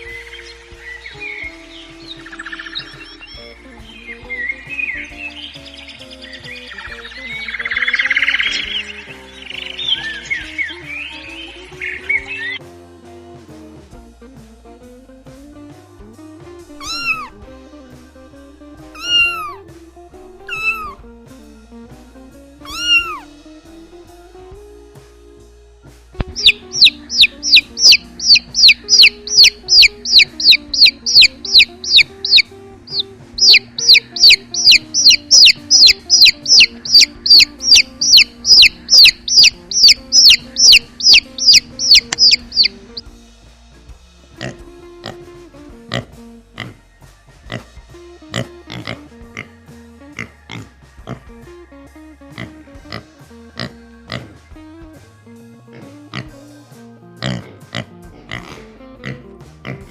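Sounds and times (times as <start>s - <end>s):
soft background music: 0.0s - 59.9s
high-pitched downward-sliding peeps: 16.8s - 17.3s, 20.5s - 21.0s, 26.3s - 43.0s
cat meowing: 16.8s - 17.4s, 19.0s - 19.6s, 20.5s - 21.0s, 22.7s - 23.2s.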